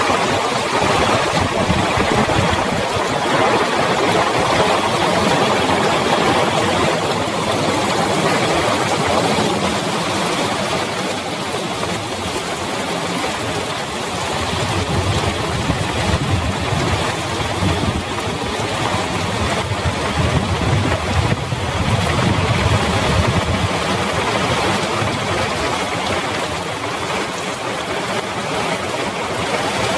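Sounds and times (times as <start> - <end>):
heavy rain falling: 0.0 - 29.9.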